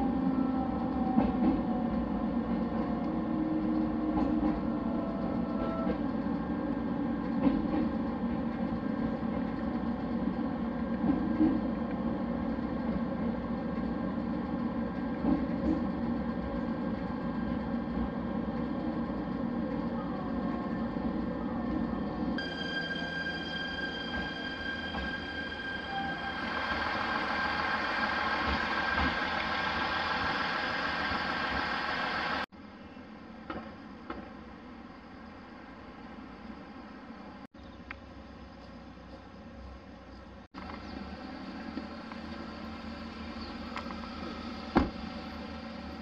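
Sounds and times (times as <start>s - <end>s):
train wheels rumbling on rails: 0.0s - 32.5s
train whine: 0.0s - 37.5s, 39.6s - 46.0s.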